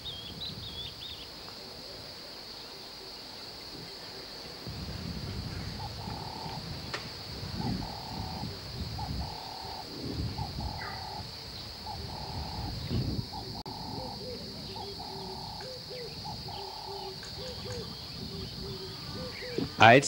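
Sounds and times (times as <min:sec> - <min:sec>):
bird lower upswept notes: 0:05.2 - 0:06.9, 0:07.6 - 0:20.0.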